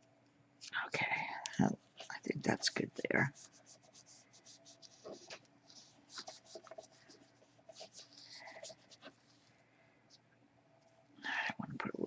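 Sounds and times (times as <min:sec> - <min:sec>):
paper rustling and scratching: 0:01.8 - 0:09.6.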